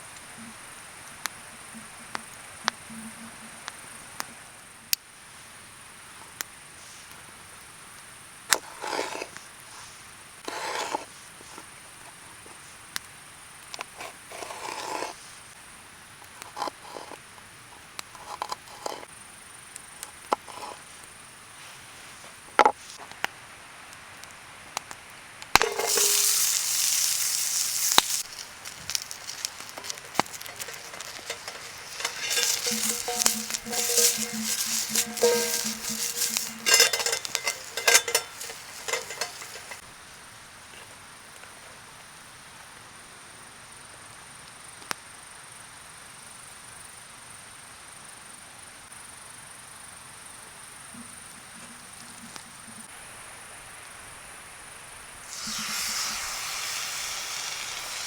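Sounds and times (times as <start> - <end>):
campfire crackling and popping: 24.9 - 39.8
insects trilling: 25.6 - 39.8
loud hiss: 25.6 - 39.8, 55.2 - 58.0
rustling: 25.6 - 39.8.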